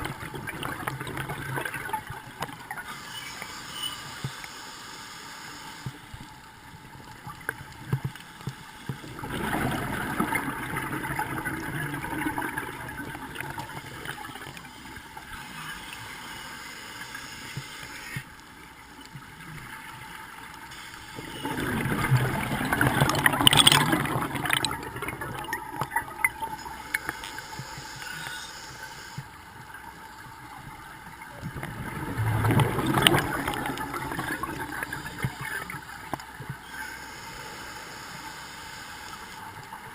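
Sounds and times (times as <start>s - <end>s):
diver's bubbles gurgling: 0.0s - 2.8s, 9.0s - 14.6s, 21.2s - 27.8s, 31.1s - 36.6s.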